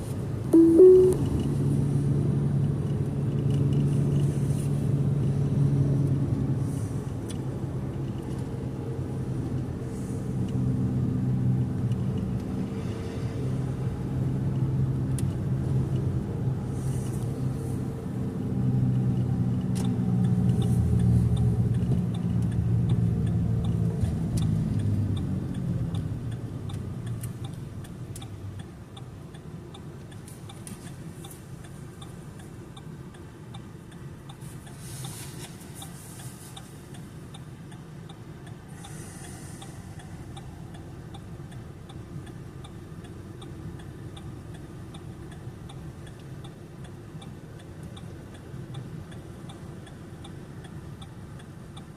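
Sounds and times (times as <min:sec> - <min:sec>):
hiss: 0:38.7 - 0:40.0.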